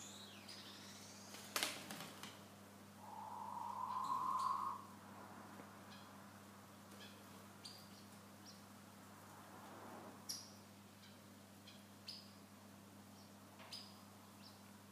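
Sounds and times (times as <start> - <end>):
cage birds chirping: 0.0 - 1.7, 3.0 - 4.8, 5.9 - 8.8, 10.3 - 14.8
low steady hum: 0.0 - 14.9.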